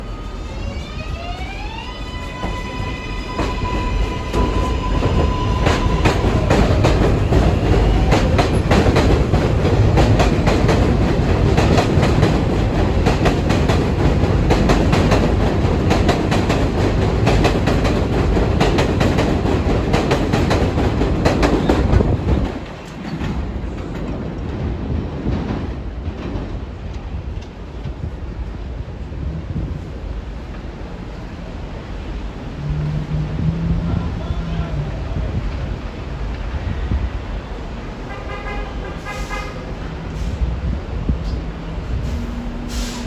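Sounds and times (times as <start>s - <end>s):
train rumble: 0.0s - 43.0s
train wheels clattering over rail joints: 3.3s - 28.2s.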